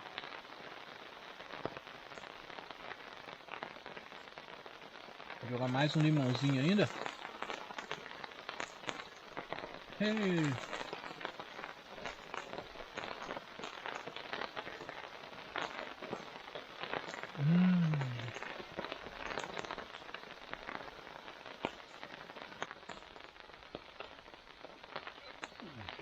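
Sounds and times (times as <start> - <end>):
rain falling: 0.0 - 26.0
drip-like ticks: 5.3 - 25.9.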